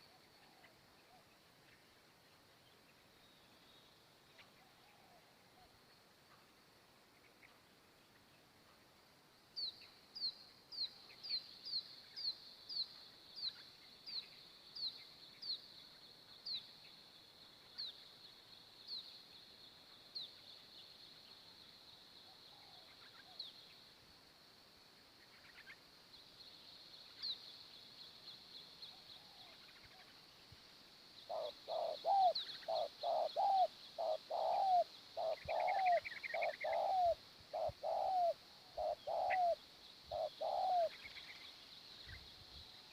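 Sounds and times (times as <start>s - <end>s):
doves cooing: 31.3s - 40.9s.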